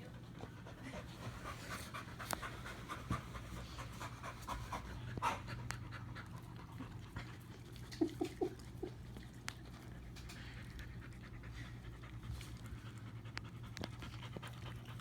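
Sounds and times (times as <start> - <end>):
dogs panting and licking: 0.0 - 15.0.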